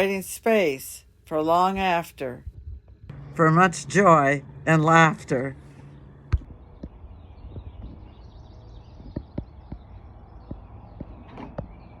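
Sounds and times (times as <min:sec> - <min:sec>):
low knocks and thumps: 0:05.6 - 0:12.0
faint bird chirps: 0:05.7 - 0:12.0.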